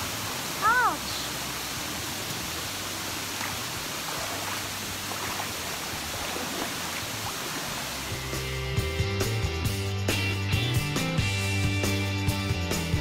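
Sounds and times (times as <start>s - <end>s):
waterfall rushing over rocks: 0.0s - 8.3s.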